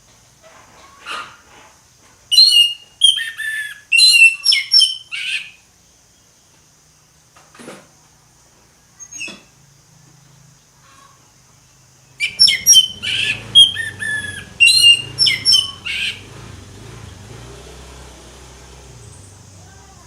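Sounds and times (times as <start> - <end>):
thrush singing: 12.2 - 20.0.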